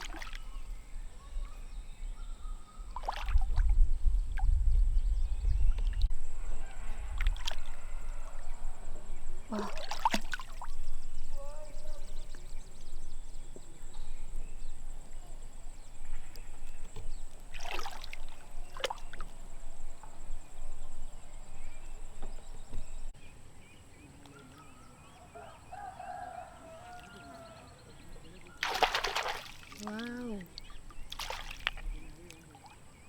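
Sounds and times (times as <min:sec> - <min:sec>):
water sloshing and splashing: 0:00.0 - 0:00.8, 0:02.9 - 0:04.5, 0:07.1 - 0:08.4, 0:09.5 - 0:20.8, 0:26.8 - 0:33.0.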